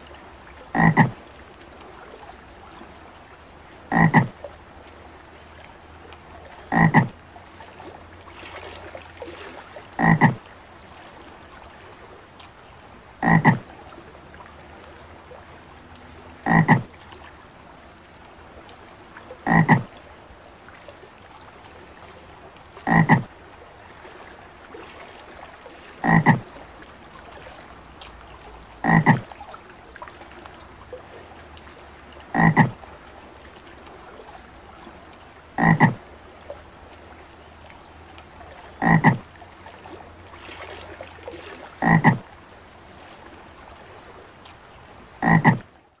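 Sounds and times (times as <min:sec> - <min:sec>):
frog croaking: 0:00.7 - 0:01.2, 0:03.9 - 0:04.4, 0:06.7 - 0:07.2, 0:10.0 - 0:10.5, 0:13.2 - 0:13.7, 0:16.4 - 0:16.9, 0:19.4 - 0:19.9, 0:22.8 - 0:23.3, 0:26.0 - 0:26.5, 0:28.8 - 0:29.3, 0:32.3 - 0:32.8, 0:35.6 - 0:36.0, 0:38.8 - 0:39.3, 0:41.8 - 0:42.3, 0:45.2 - 0:45.7.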